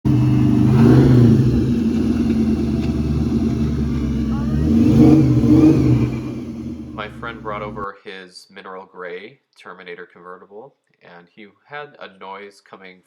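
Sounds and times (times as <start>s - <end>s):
car engine running: 0.0s - 7.8s.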